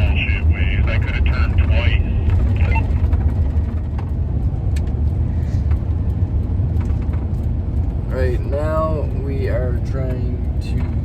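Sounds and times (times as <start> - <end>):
engine and road rumble in van: 0.0 - 11.0.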